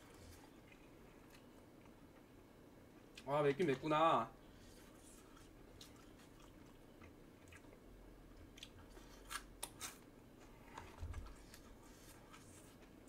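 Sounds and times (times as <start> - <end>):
close-up chewing: 4.5 - 13.0.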